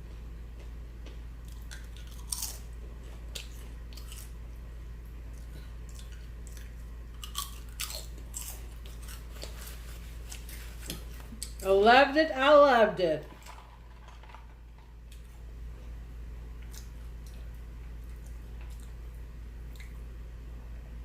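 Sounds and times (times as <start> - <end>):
person chewing food: 0.1 - 4.6, 5.2 - 11.6, 14.9 - 20.1
crunchy crackles: 1.4 - 4.4, 5.4 - 11.6.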